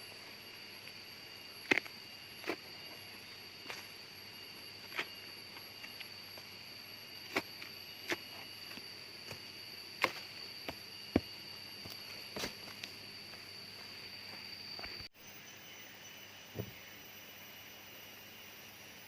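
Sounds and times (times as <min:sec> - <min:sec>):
high-pitched insect drone: 0:00.0 - 0:19.0.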